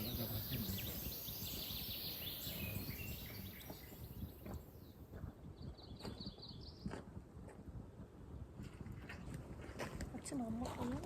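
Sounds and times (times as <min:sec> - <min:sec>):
bird chirps: 0:00.0 - 0:06.9.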